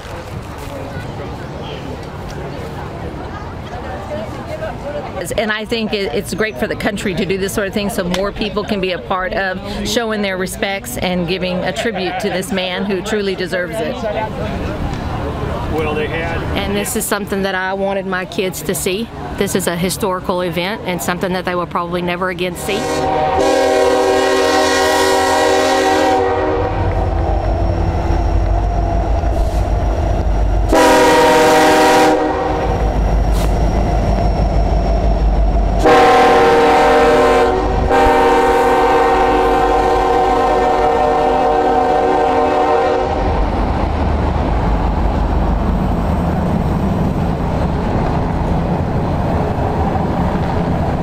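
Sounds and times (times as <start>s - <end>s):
train rumbling and rattling: 0.0s - 51.0s
locomotive air horn blasts: 22.6s - 27.2s, 30.7s - 32.8s, 35.8s - 43.3s.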